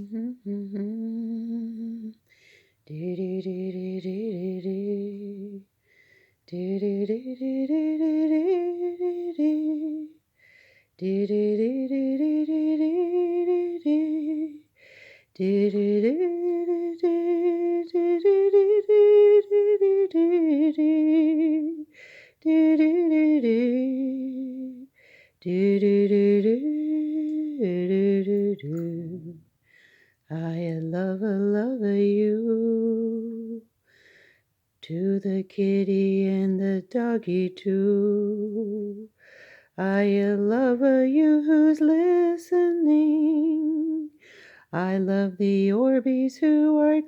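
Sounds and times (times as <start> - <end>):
woman breathing: 2.2 - 2.8, 5.7 - 6.5, 10.3 - 11.0, 14.7 - 15.4, 21.9 - 22.4, 24.9 - 25.4, 29.5 - 30.3, 33.8 - 34.6, 39.1 - 39.8, 44.2 - 44.8.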